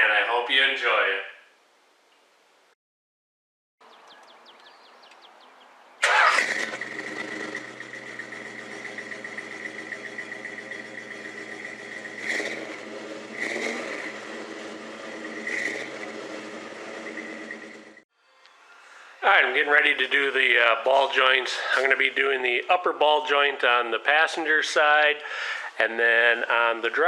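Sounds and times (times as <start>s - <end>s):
engine cranking and starting: 6.0s - 18.0s
engine revving: 6.0s - 18.0s
high whine: 6.8s - 18.0s.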